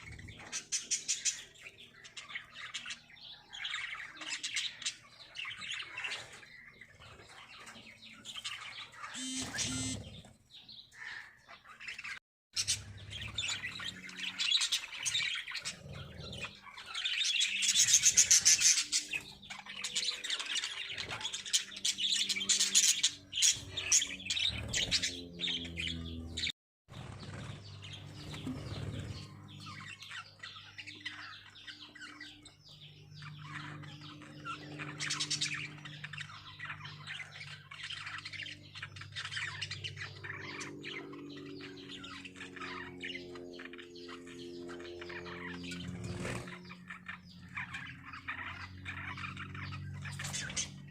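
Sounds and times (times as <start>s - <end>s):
lovebirds chirping and squawking: 0.0s - 50.9s.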